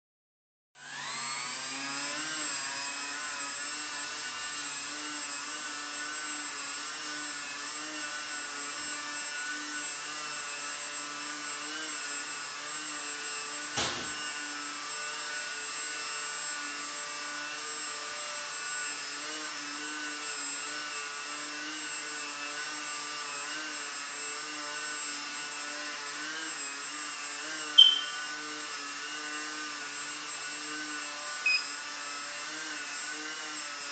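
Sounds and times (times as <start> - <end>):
model airplane motor whining: 0.8 - 10.4
sharp high-pitched blip: 27.8 - 28.3.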